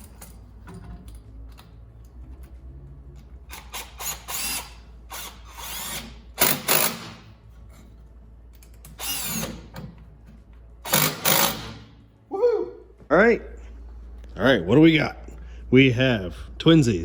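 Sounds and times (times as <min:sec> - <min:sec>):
impact driver whirring and hammering: 0:03.5 - 0:07.3, 0:08.9 - 0:10.0, 0:10.8 - 0:12.0.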